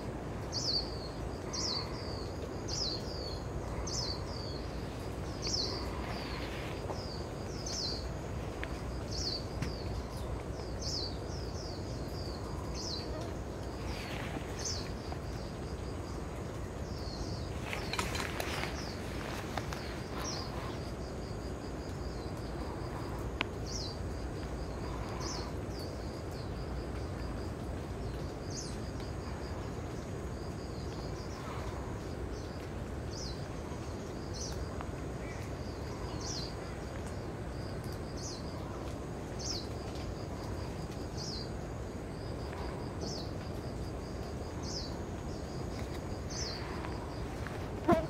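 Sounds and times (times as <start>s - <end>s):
low background rush: 0.0s - 48.0s.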